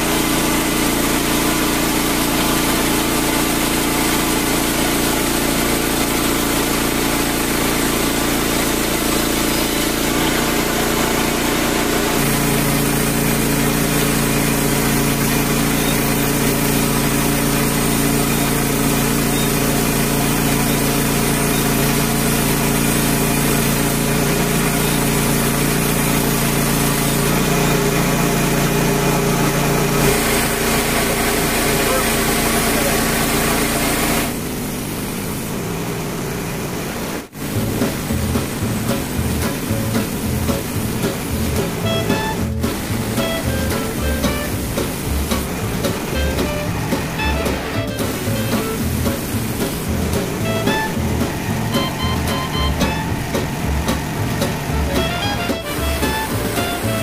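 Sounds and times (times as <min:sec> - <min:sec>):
bandsaw mill engine running: 0:00.0 - 0:57.0
band blade sawing log: 0:37.6 - 0:57.0.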